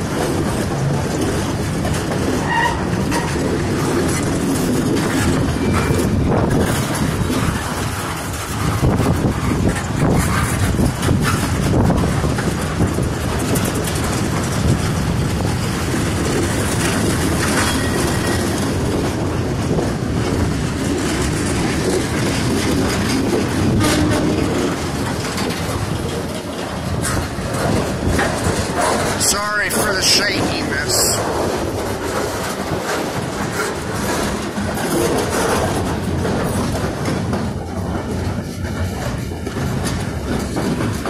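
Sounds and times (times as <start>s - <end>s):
steel wheels rumbling on rail: 0.0s - 41.0s
wheels clicking over rail joints: 0.0s - 41.0s.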